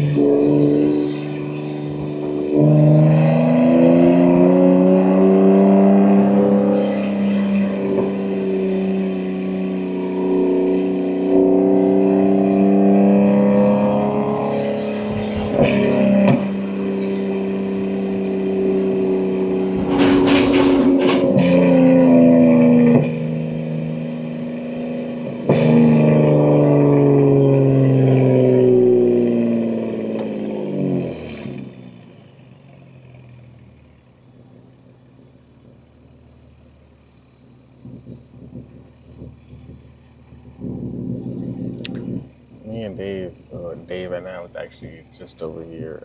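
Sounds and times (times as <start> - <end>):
car engine revving: 0.0 - 46.0
exhaust cracks: 0.0 - 46.0.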